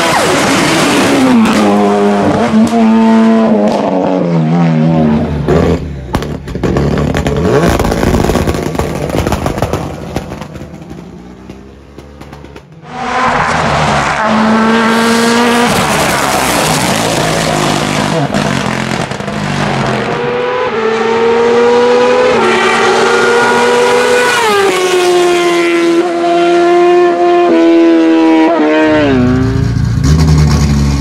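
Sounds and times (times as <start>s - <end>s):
race car engine accelerating: 12.2s - 31.0s.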